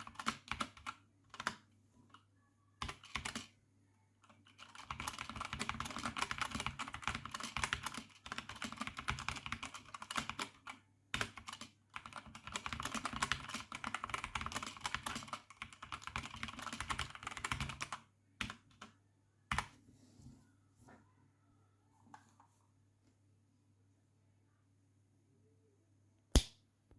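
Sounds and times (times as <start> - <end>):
keyboard typing: 0.0 - 1.6, 2.8 - 3.5, 4.2 - 18.9.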